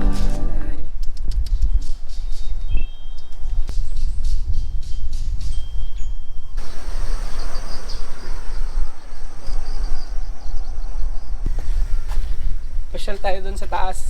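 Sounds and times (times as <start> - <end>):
high pulsing chirring: 0.0 - 0.8, 4.0 - 14.0
wind buffeting microphone: 0.0 - 14.0.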